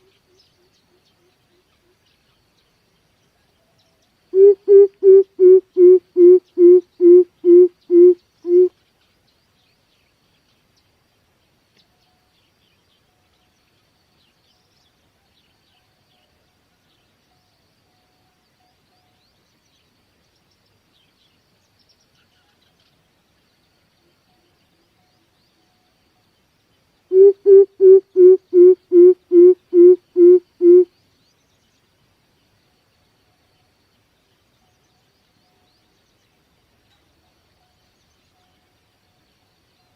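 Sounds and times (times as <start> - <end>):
bird hooting: 4.4 - 8.7, 27.1 - 30.9.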